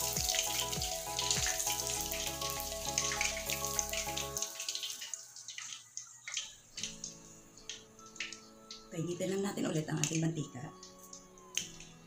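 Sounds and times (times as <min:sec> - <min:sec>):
chicken sizzling in hot oil: 0:00.0 - 0:09.0.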